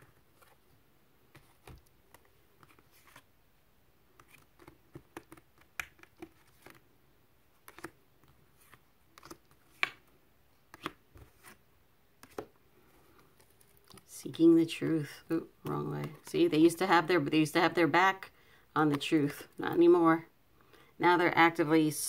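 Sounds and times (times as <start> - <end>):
cards being shuffled: 0.0 - 3.3, 4.1 - 14.1.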